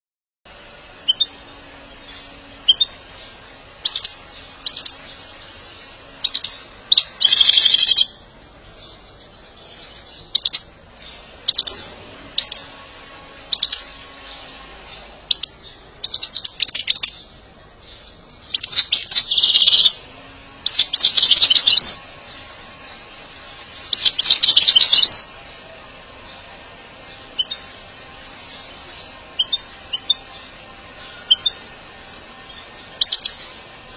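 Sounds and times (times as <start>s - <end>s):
rapid twittering birdsong: 0.5s - 33.9s
goldfinch chirps: 1.1s - 20.0s, 20.6s - 25.3s, 27.0s - 33.8s.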